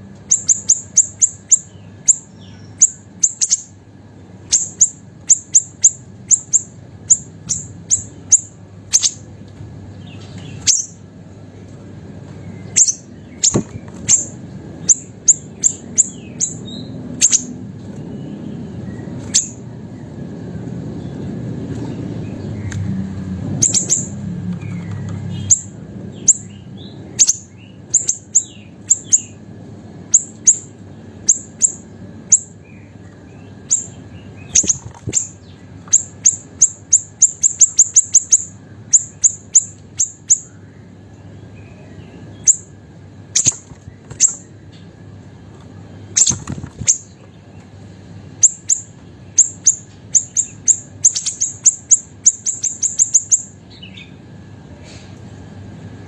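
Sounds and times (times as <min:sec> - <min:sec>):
songbird calling high sharp notes: 0:00.2 - 0:03.7, 0:04.5 - 0:09.2, 0:10.4 - 0:11.0, 0:12.6 - 0:17.6, 0:18.9 - 0:19.6, 0:23.6 - 0:24.2, 0:25.3 - 0:29.4, 0:30.1 - 0:40.6, 0:41.6 - 0:42.7, 0:48.4 - 0:54.2.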